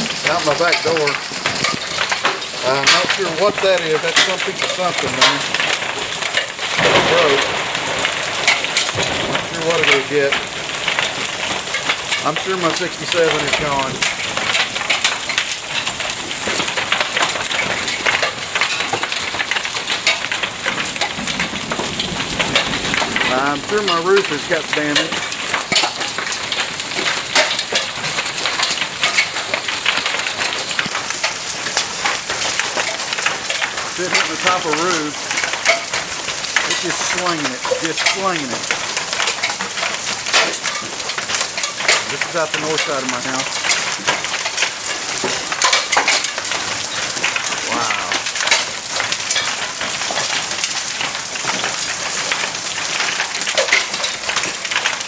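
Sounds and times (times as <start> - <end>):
hailstones clattering: 0.0 - 55.0
rushing downpour: 0.0 - 55.0.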